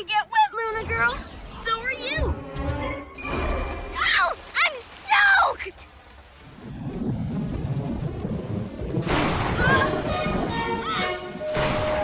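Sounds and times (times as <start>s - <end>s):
heavy rain: 3.2s - 12.0s
thunder rumble: 6.4s - 12.0s
background music with gliding notes: 9.8s - 12.0s.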